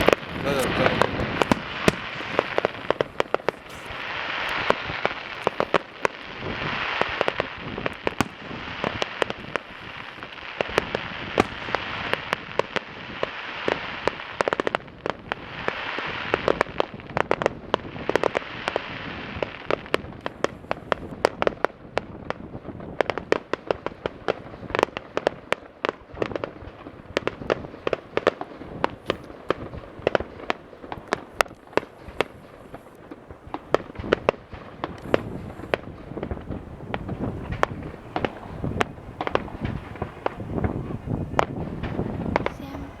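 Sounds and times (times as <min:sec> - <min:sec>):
crackling hiss of fireworks: 0:00.0 - 0:43.0
firework bangs and cracks: 0:00.0 - 0:43.0.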